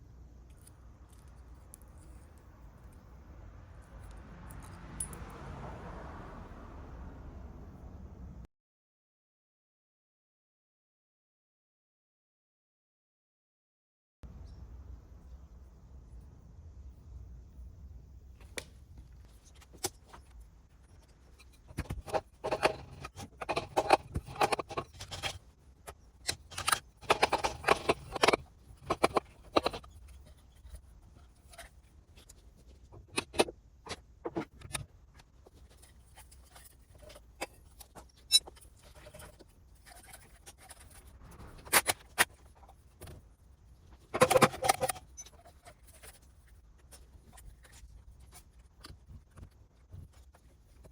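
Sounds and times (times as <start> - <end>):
metal tools clinking and rattling: 21.7 - 25.4, 26.3 - 30.0, 44.2 - 46.1.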